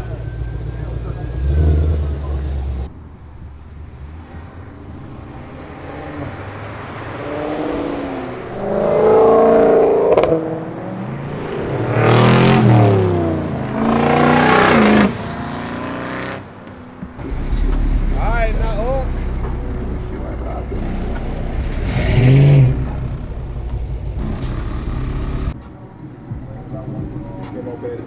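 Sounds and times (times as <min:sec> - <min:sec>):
car engine revving: 0:00.0 - 0:25.7
engine pop: 0:17.2 - 0:25.6.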